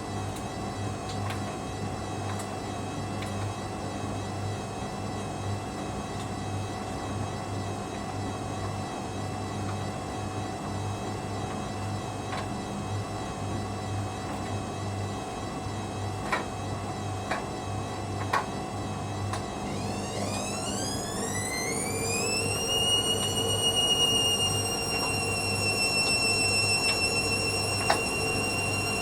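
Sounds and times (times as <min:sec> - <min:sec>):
washing machine motor humming: 0:00.0 - 0:29.0.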